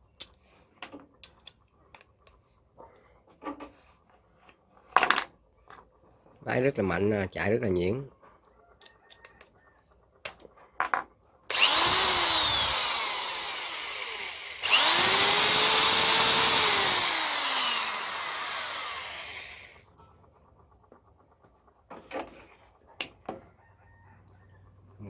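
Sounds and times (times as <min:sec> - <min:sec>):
electric drill whine: 0:11.5 - 0:19.8.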